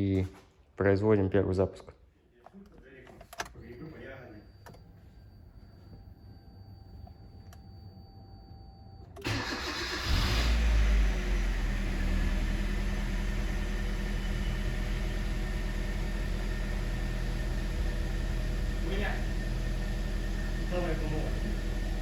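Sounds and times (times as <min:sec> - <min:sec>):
car engine starting and idling: 0:09.2 - 0:22.0.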